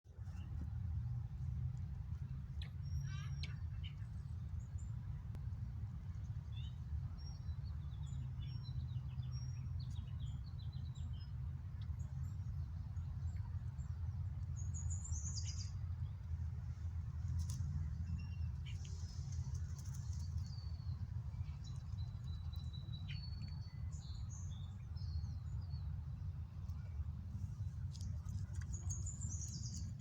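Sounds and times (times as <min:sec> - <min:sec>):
low rumble: 0:00.1 - 0:30.0
small birds chirping: 0:06.2 - 0:30.0.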